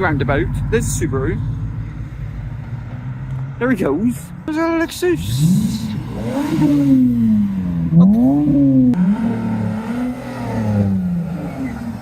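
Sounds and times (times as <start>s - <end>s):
car engine revving: 5.1s - 12.0s.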